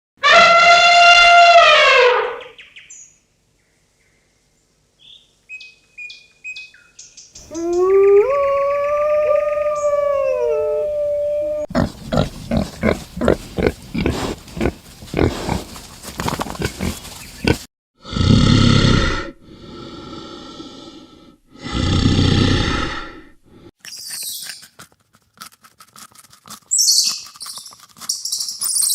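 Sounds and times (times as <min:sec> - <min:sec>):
harsh animal calls: 0:11.7 - 0:17.7
pig grunting: 0:11.7 - 0:20.9, 0:21.5 - 0:23.3.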